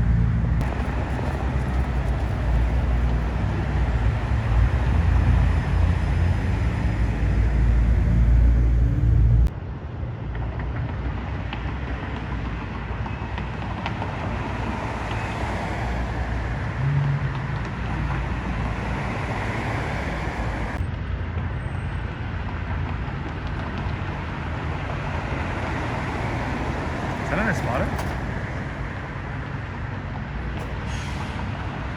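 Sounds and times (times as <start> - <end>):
cars going by: 0.0 - 31.9
low engine note: 0.4 - 9.6.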